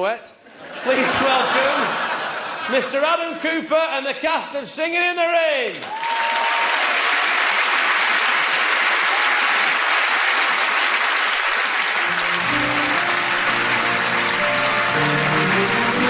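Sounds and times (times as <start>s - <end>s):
audience applauding: 5.8s - 16.0s
instrumental music: 12.0s - 16.0s.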